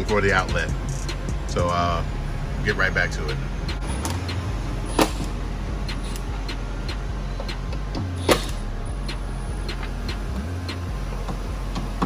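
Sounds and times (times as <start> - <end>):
steady low hum: 0.0 - 12.0
hand tools clicking and knocking: 3.7 - 12.0.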